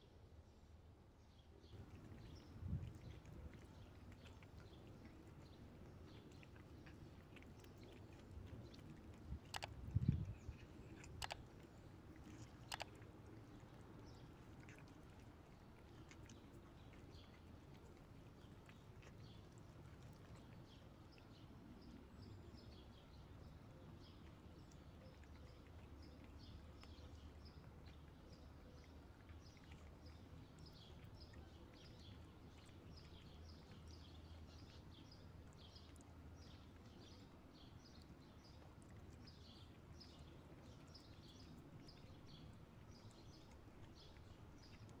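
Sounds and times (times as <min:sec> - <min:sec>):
small birds chirping: 0:01.2 - 0:45.0.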